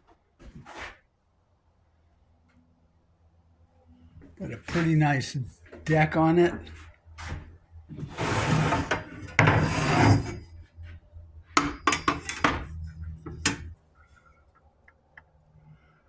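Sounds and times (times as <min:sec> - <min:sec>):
scraping and rubbing of saw parts: 0:08.0 - 0:10.7, 0:11.6 - 0:13.8
hard parts clacking together: 0:11.6 - 0:13.7.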